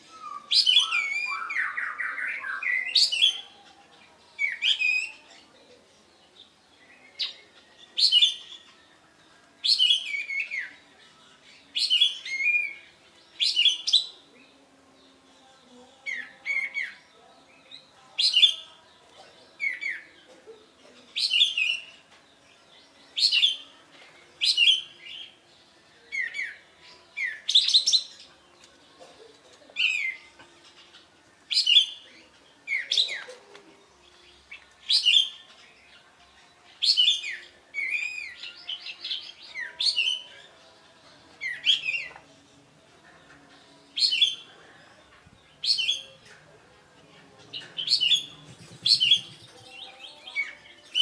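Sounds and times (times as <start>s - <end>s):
songbird whistling song: 0.0s - 3.6s, 4.4s - 5.4s, 6.7s - 8.8s, 9.6s - 14.3s, 21.1s - 22.1s, 24.4s - 25.4s, 29.8s - 33.4s, 34.2s - 36.0s, 36.8s - 40.4s, 47.5s - 51.0s.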